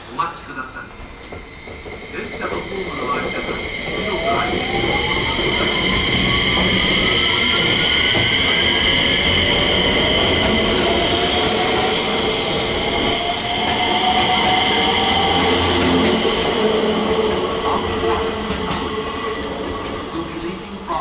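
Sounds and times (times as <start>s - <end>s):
train wheel squeal: 1.2s - 16.6s.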